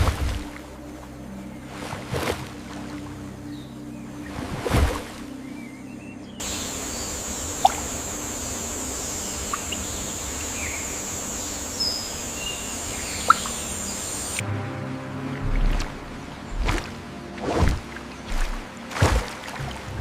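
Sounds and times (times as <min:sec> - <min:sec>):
steady high hiss: 0:06.4 - 0:14.4
short bird chirps: 0:11.7 - 0:14.4.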